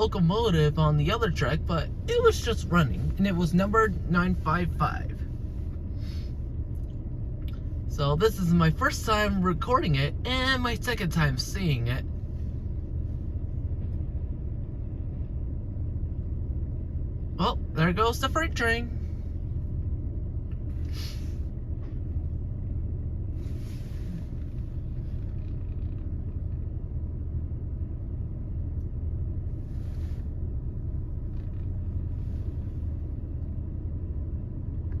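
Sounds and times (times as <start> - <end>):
diesel locomotives rumbling: 0.0 - 35.0
short hisses: 20.8 - 21.5.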